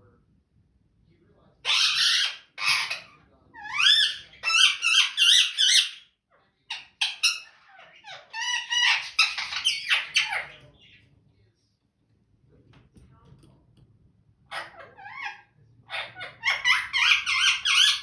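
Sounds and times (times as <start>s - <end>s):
parrot squawking and whistling: 6.8s - 10.5s, 14.5s - 18.0s.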